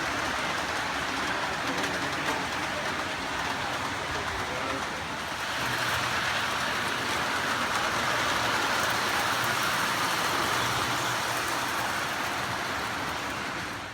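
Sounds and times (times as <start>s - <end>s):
model train wheels whirring: 0.0s - 13.9s.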